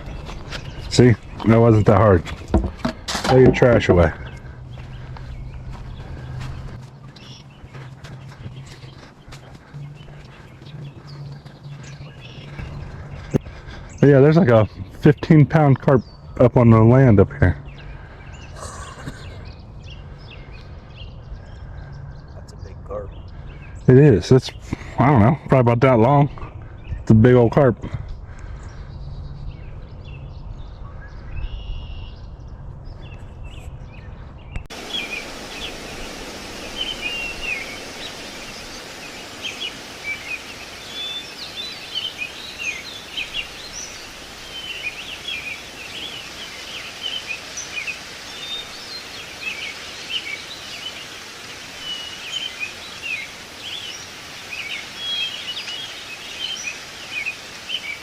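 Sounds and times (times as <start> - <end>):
small birds chirping: 0.0 - 58.0
low rumble: 9.8 - 13.9
steady hiss: 34.7 - 58.0.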